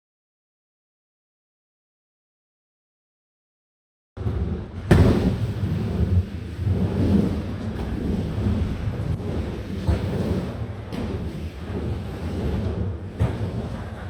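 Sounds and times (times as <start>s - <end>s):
skateboard wheels rolling: 4.2s - 14.0s.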